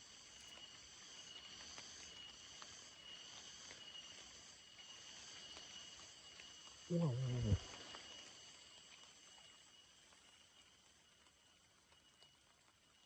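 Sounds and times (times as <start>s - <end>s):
insect trills: 0.0s - 13.0s.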